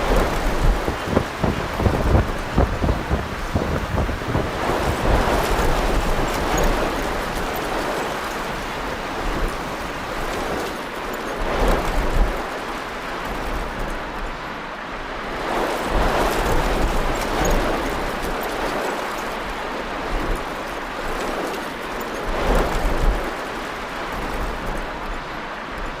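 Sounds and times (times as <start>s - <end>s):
wind buffeting microphone: 0.0s - 10.9s
storm wind and rain: 0.0s - 26.0s.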